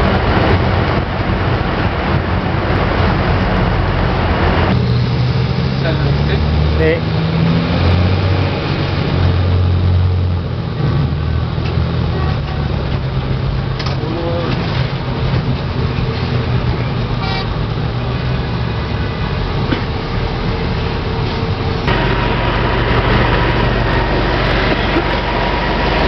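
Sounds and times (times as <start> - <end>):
passenger train rumbling: 0.0 - 26.0
deep hum: 20.0 - 26.0.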